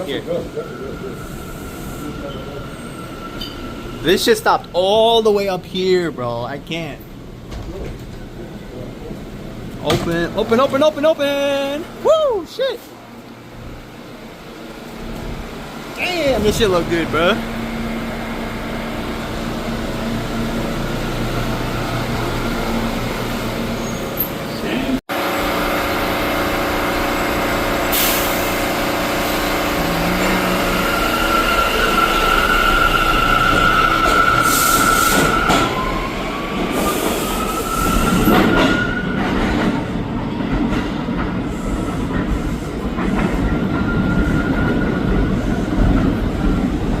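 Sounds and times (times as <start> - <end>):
subway train squealing: 0.0 - 5.1, 11.4 - 47.0
train wheel noise: 13.2 - 47.0
train whine rising: 14.3 - 24.4, 25.1 - 39.3.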